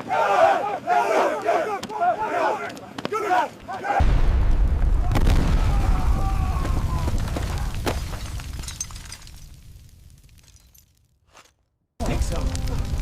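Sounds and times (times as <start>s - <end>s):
explosion deep boom: 4.0s - 8.6s.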